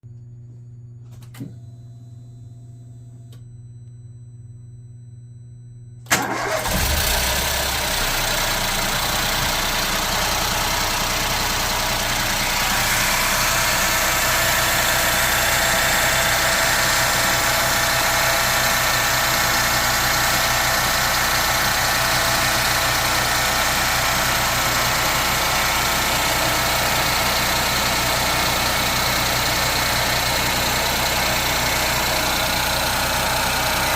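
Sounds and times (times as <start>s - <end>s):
click: 3.3s - 4.0s
high noisy engine sound: 6.1s - 20.1s
car engine starting and idling: 6.1s - 33.9s.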